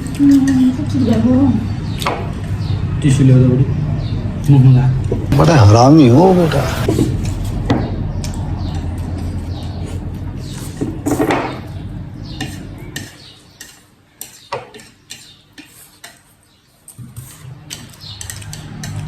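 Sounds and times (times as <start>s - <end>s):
chopsticks scraping a bowl: 6.8s - 19.0s.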